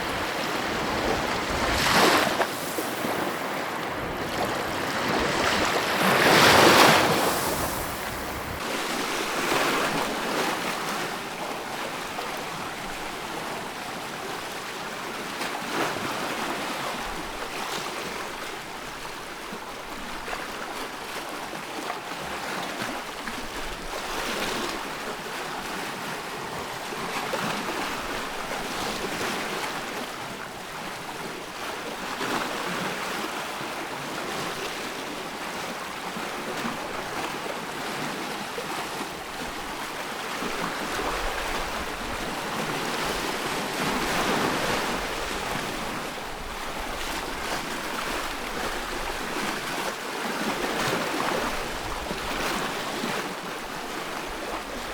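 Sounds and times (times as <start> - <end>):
ocean waves washing in: 0.0 - 10.3.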